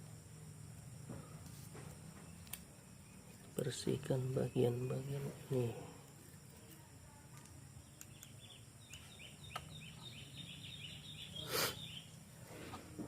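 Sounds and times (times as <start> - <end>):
faint bird chirping: 0.1 - 13.0
short hiss of air: 11.4 - 11.9.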